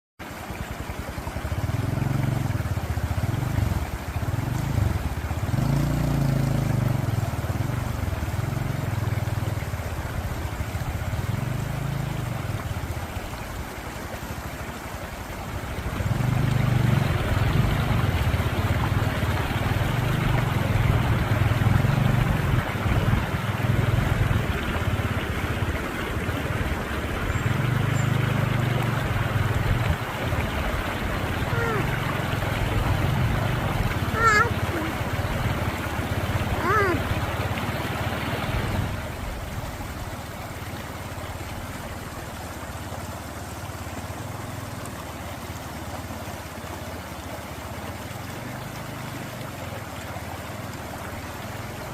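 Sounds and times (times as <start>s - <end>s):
river water rushing: 0.2s - 51.9s
motorcycle engine revving: 1.2s - 13.1s, 15.4s - 39.3s.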